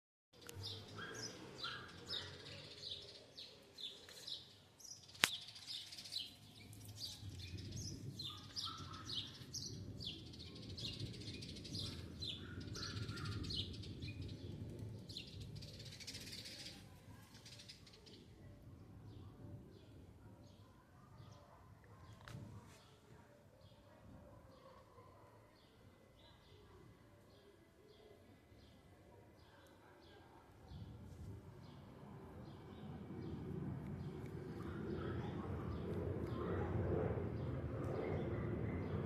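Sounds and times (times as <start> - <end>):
small birds chirping: 0.4 - 18.2.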